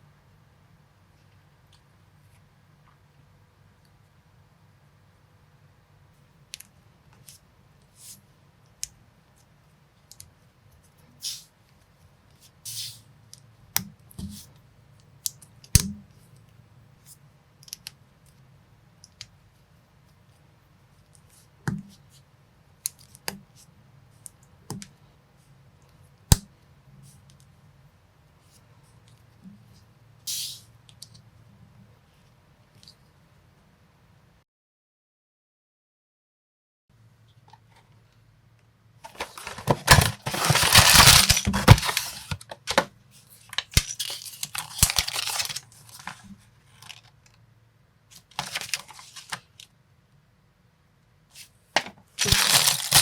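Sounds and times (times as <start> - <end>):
scraping rustles: 39.1 - 42.4.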